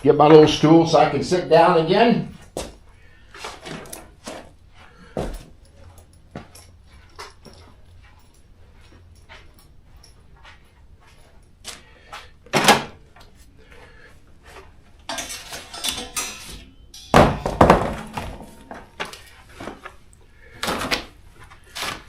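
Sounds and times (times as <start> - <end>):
hand tools clattering and knocking: 14.4 - 19.9
hardware rattling: 15.0 - 19.4.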